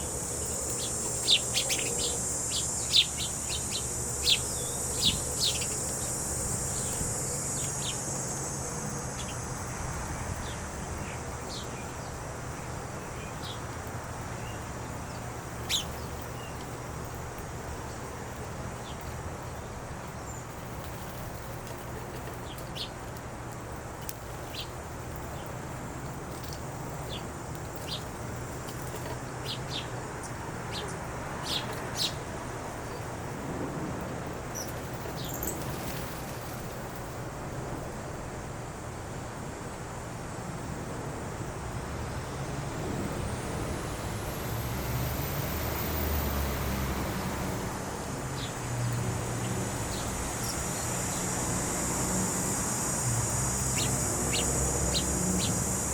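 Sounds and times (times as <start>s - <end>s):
small birds chirping: 0.0s - 33.2s, 34.5s - 37.2s, 43.2s - 55.9s
low background noise: 0.0s - 55.9s
high steady buzz: 41.1s - 55.9s.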